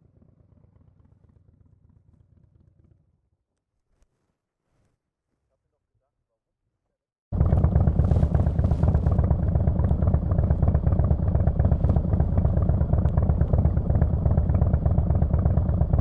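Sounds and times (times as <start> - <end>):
motorcycle engine running: 7.3 - 16.0.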